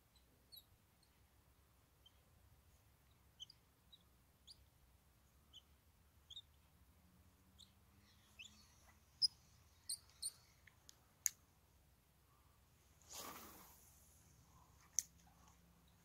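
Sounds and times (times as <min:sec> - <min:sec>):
faint high bird chirps: 0:00.0 - 0:01.2, 0:02.0 - 0:02.3, 0:03.0 - 0:04.7, 0:05.3 - 0:06.7, 0:07.5 - 0:10.5.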